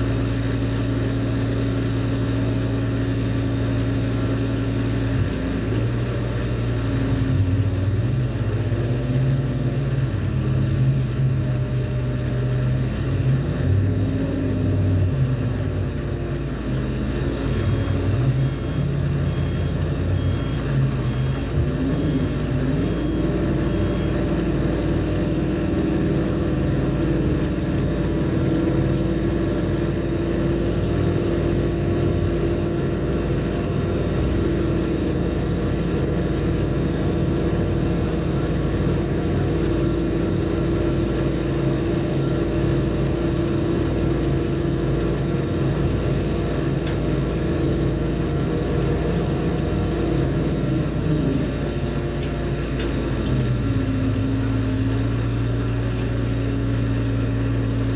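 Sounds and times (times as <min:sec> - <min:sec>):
heavy machinery engine drone: 0:00.0 - 0:57.9
faint high beeps: 0:17.2 - 0:30.1.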